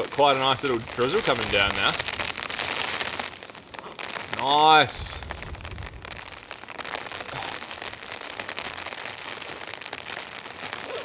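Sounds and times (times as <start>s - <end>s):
drizzle pattering on a tarp: 0.0s - 11.0s
low rumble: 5.0s - 6.5s.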